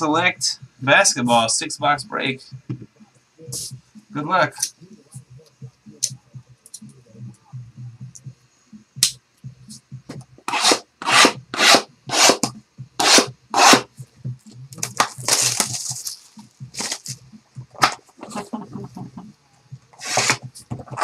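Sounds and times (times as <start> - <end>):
rustling: 14.4 - 17.2
plastic wrap and cardboard ripping: 14.8 - 17.2.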